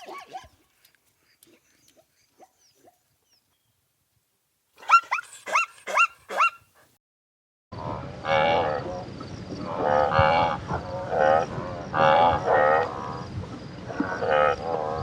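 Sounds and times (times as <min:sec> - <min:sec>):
young dog yelping: 0:04.8 - 0:06.7
drawn-out animal calls: 0:08.2 - 0:15.0.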